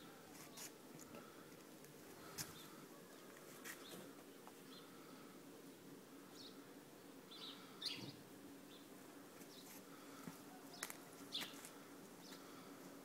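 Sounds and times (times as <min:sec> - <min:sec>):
faint bird chirps: 0:07.3 - 0:08.9.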